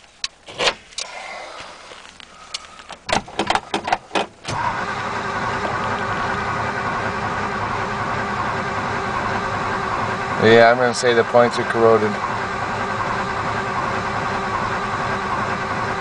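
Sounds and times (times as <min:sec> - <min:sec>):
sharp clicks and knocks: 0:02.5 - 0:04.6
engine starter cranking: 0:02.5 - 0:16.0.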